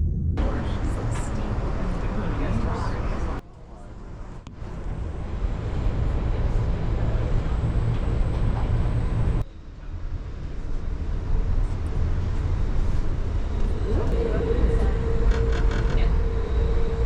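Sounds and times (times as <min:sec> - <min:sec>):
passenger train rumble: 0:00.0 - 0:17.0.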